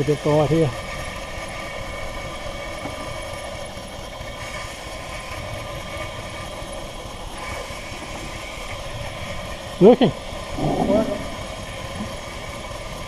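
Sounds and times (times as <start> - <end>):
model steam engine hissing: 3.6 - 10.6.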